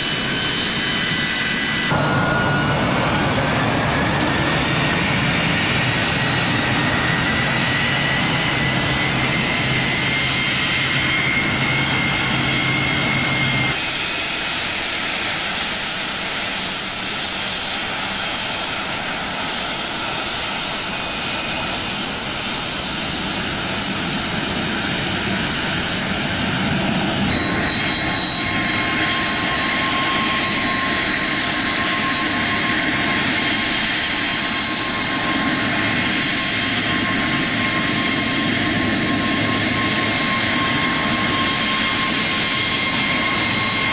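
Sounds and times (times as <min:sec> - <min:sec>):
jet engines whining: 0:00.0 - 0:43.9.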